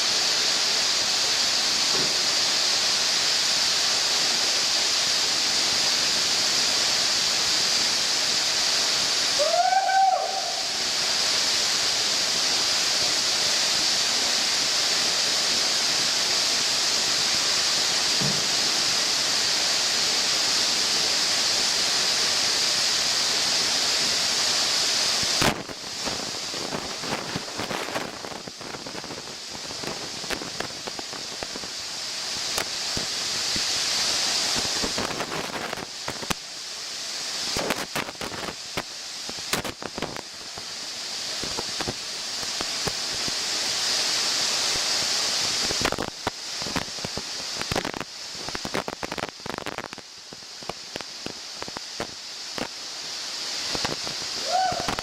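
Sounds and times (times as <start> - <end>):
waterfall rushing: 0.0 - 55.0
sharp knock: 18.2 - 18.5
sharp clicks and crackles: 34.6 - 36.4, 37.5 - 40.7, 45.6 - 52.8.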